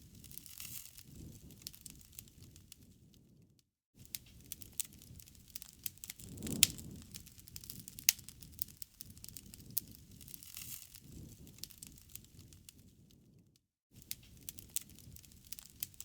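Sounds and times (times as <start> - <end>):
wood fire crackling: 0.0 - 3.4, 4.1 - 13.4, 14.0 - 16.0
low rush of flames: 4.3 - 13.3.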